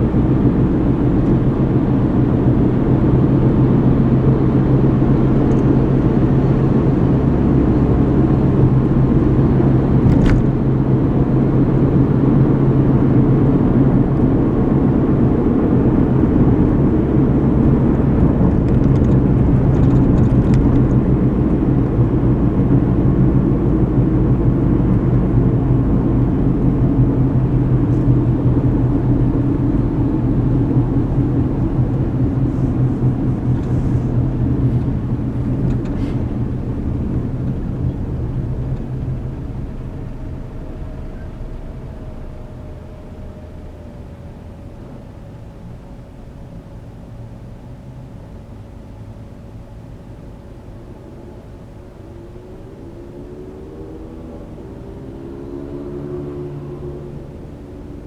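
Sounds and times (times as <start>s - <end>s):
car cabin engine and tyre hum: 0.0s - 58.0s.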